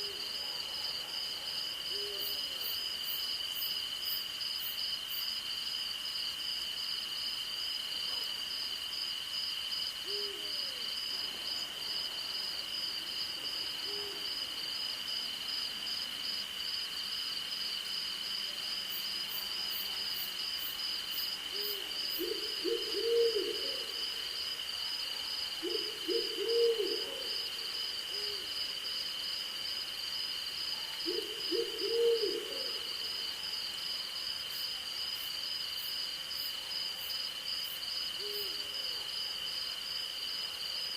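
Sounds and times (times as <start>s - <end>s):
crickets and insects chirping: 0.0s - 40.9s
owl hooting: 21.5s - 24.0s, 25.6s - 27.3s, 31.0s - 32.8s.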